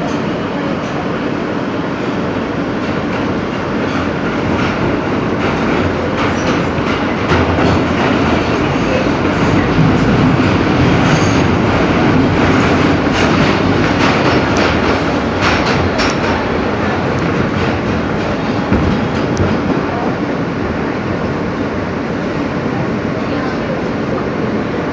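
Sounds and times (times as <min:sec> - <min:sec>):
subway wheels rumbling on rail: 0:00.0 - 0:24.9
wheels clacking over rail joints: 0:02.8 - 0:20.1.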